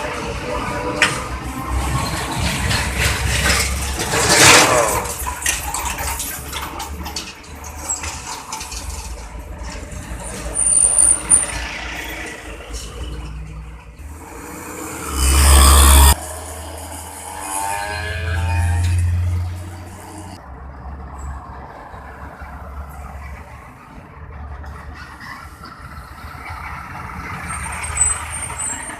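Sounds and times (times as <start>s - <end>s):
heavy vehicle deep rumble: 0.0s - 17.0s
trucks driving past: 0.0s - 28.9s
high squeal: 17.3s - 20.4s.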